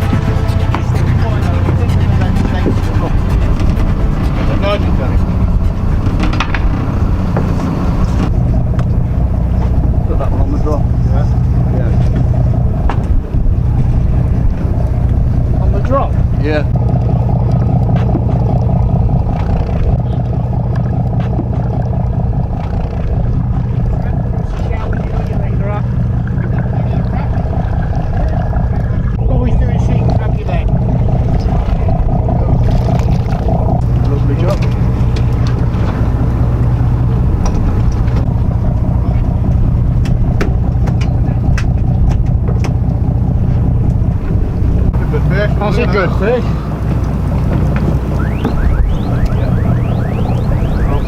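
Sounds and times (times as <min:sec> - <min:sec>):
boat engine running: 0:00.0 - 0:51.0
sharp clicks and knocks: 0:05.6 - 0:09.0, 0:39.5 - 0:44.4.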